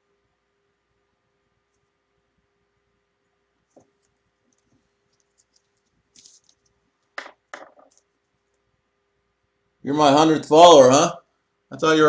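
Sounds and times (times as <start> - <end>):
clicks and rustles of handling: 3.6 - 8.7
sharp crackles: 4.0 - 8.1.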